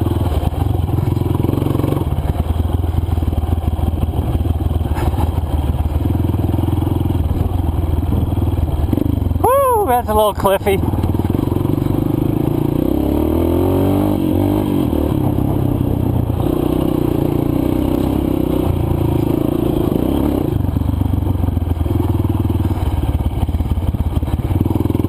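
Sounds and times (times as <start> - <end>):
dirt bike engine revving: 10.7 - 20.6.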